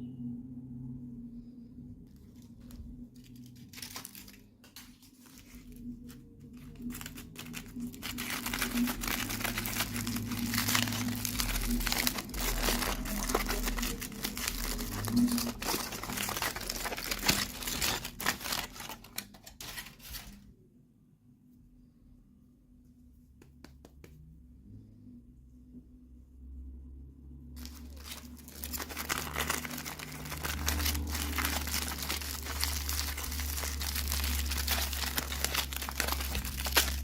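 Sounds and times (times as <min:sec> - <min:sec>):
packaging crinkling and tearing: 0:02.2 - 0:20.5, 0:27.6 - 0:37.0.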